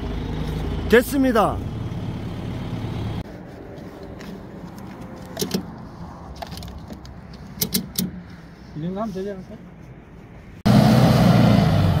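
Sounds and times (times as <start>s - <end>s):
vehicle engine running: 0.0s - 6.0s.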